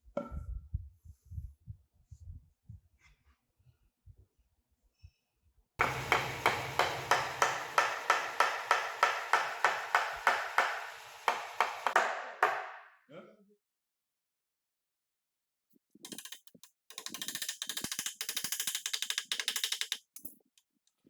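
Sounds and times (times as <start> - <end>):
hammer striking wood: 5.8 - 12.9.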